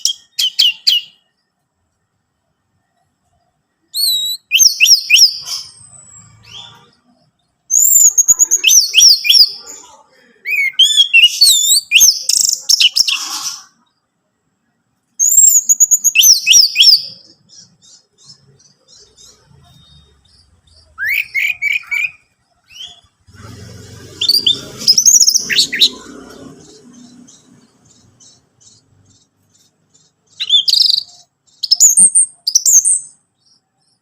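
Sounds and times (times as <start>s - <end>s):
thrush singing: 17.0s - 30.4s.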